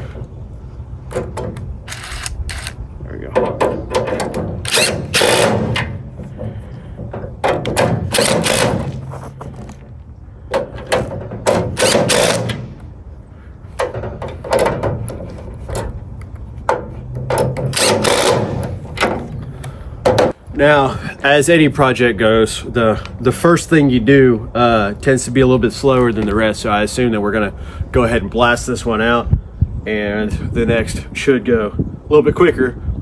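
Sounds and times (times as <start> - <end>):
impact driver hammering: 3.4 - 9.6, 10.5 - 12.9, 16.7 - 19.4.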